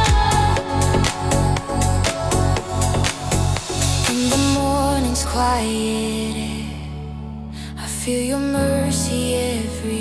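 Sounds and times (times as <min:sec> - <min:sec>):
electronic dance music: 0:00.0 - 0:04.6.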